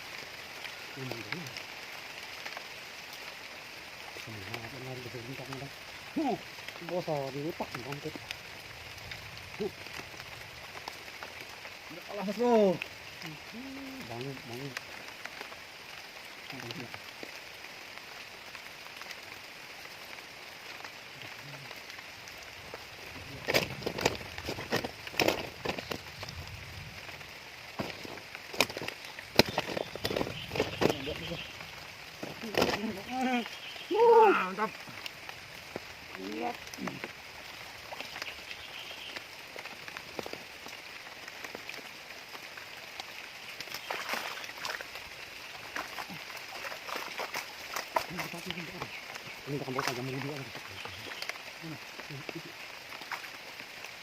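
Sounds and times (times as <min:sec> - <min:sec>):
steady rain falling: 0:00.0 - 0:54.0
sharp drips and taps: 0:27.8 - 0:33.9, 0:34.7 - 0:53.9.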